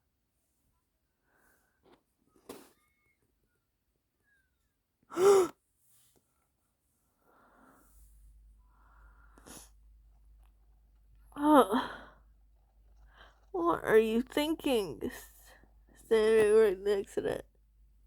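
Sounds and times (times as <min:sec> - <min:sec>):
woman's wordless vocal sounds: 0:11.4 - 0:12.0.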